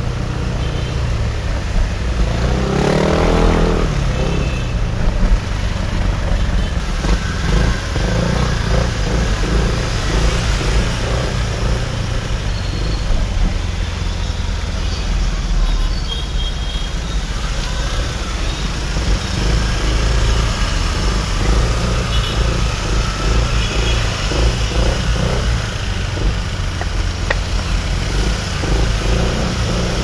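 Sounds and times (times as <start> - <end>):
engine revving: 0.0 - 14.9, 17.8 - 30.0
city traffic noise: 0.0 - 30.0
motorbike engine running: 3.8 - 14.0, 18.4 - 30.0.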